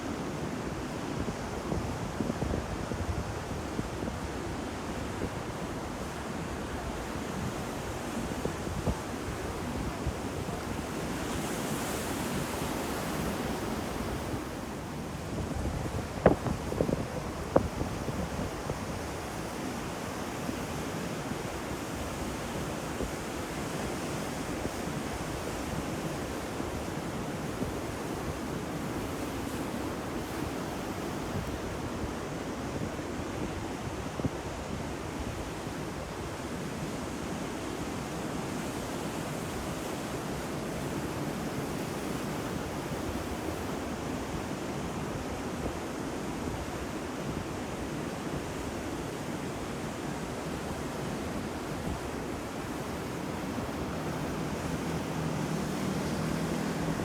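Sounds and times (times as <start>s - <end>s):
ocean surf washing ashore: 0.0s - 57.0s
wind on microphone: 6.8s - 19.6s.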